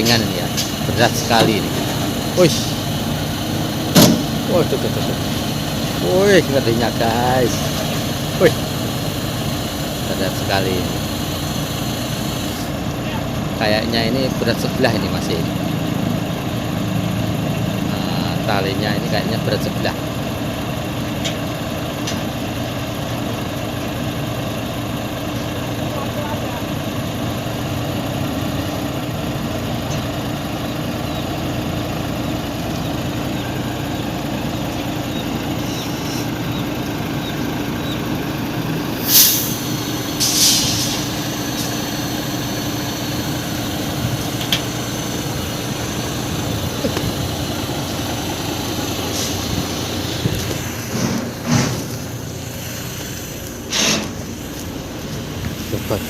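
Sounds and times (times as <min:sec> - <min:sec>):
heavy diesel engine running: 0:00.0 - 0:56.0
knocks and clanks: 0:03.9 - 0:04.5, 0:49.1 - 0:52.1
sharp air hisses: 0:39.0 - 0:43.3, 0:52.4 - 0:54.6.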